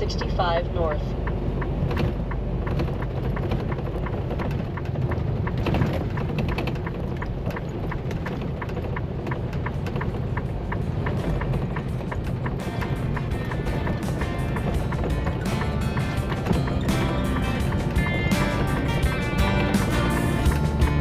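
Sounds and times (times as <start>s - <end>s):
turn signal clicking: 0.0s - 20.9s
truck engine and road rumble: 0.0s - 21.0s.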